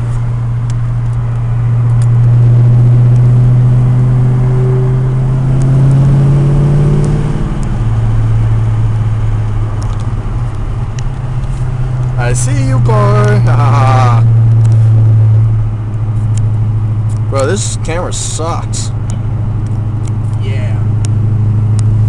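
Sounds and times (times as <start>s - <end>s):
car exhaust drone: 0.0s - 22.0s.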